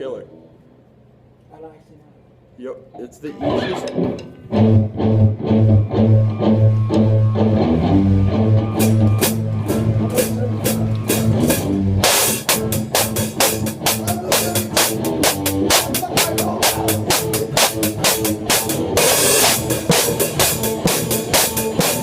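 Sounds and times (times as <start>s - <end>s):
electric bass pulsing: 3.4s - 22.0s
drum kit with cymbals: 8.6s - 22.0s.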